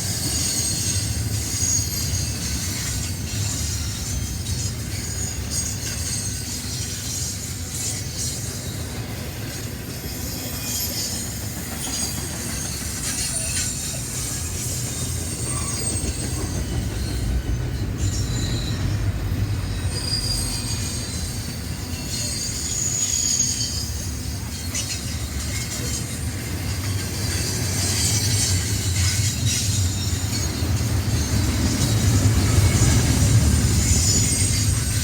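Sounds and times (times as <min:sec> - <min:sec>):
train cars rumbling past: 0:00.0 - 0:35.0
train wheels squealing: 0:00.0 - 0:35.0.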